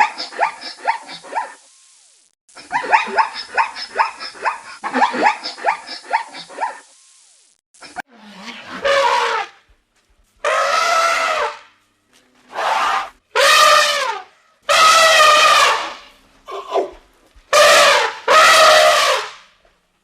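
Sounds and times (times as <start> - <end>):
wild animal calling: 10.4 - 11.7, 12.5 - 17.0.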